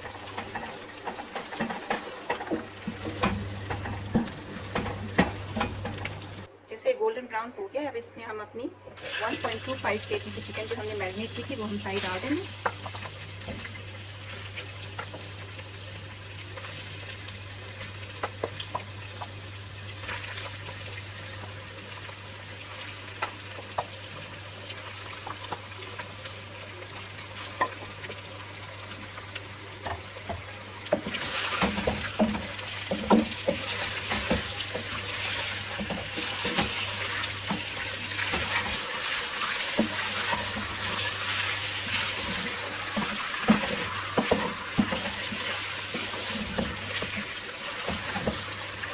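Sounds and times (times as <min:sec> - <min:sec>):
chicken sizzling in hot oil: 0:00.0 - 0:06.5, 0:09.0 - 0:48.9
spoon stirring and scraping: 0:00.0 - 0:06.5, 0:29.9 - 0:48.4.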